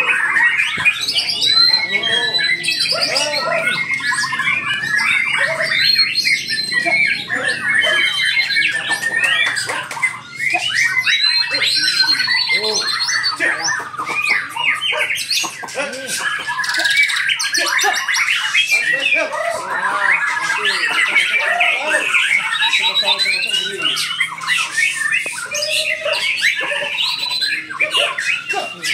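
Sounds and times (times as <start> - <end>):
many songbirds singing: 0.0 - 28.9.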